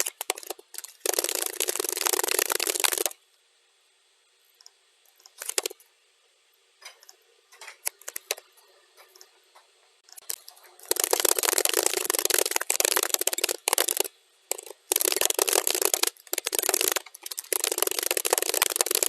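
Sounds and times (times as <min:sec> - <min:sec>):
computer keyboard typing: 0:00.0 - 0:03.2, 0:05.3 - 0:05.8, 0:10.2 - 0:19.0.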